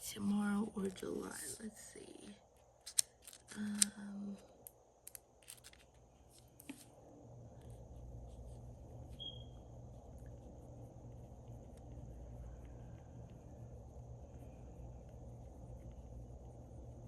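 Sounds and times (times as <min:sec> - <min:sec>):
low steady hum: 0:00.0 - 0:17.0
pen clicks: 0:02.8 - 0:04.0
handling planner pages: 0:05.4 - 0:06.9.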